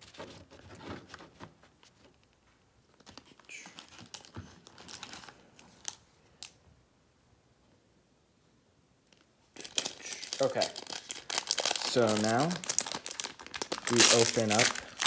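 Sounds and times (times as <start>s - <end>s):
cards and wrapper rustling: 2.9s - 6.6s, 9.1s - 15.0s.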